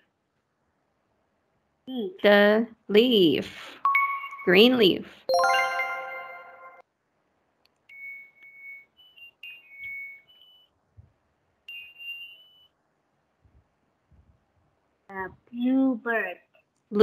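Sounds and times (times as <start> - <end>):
chime ringing: 3.9 - 4.6, 5.3 - 6.8
washing machine electronic beeps: 3.9 - 6.8, 7.9 - 10.8, 11.7 - 12.8.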